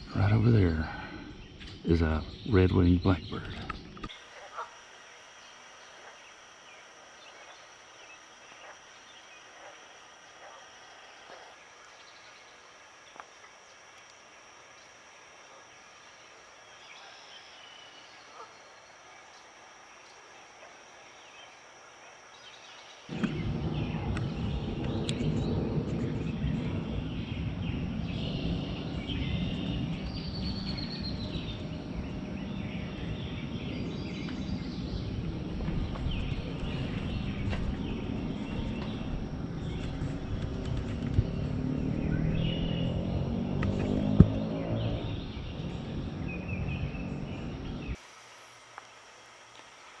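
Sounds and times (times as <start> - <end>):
blackbirds calling: 0.0 - 50.0
high insect drone: 0.0 - 50.0
loud low rumbling noise: 23.1 - 48.0.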